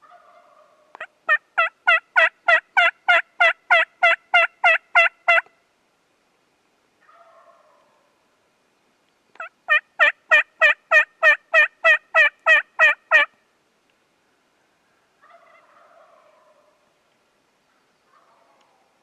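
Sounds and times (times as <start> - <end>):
turkey yelps: 0.0 - 5.5, 7.0 - 8.1, 9.4 - 13.3, 15.2 - 16.8, 18.1 - 18.9
distant turkey gobble: 0.0 - 5.6, 7.0 - 8.2, 9.4 - 13.4, 14.8 - 16.9, 17.7 - 19.0.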